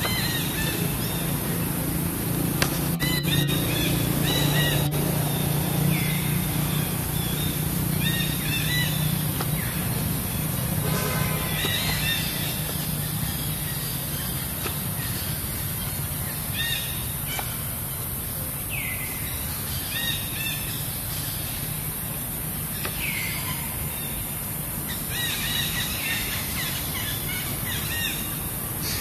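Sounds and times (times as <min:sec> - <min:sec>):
steady low rumble: 0:00.0 - 0:16.3
birds chirping: 0:00.0 - 0:29.0.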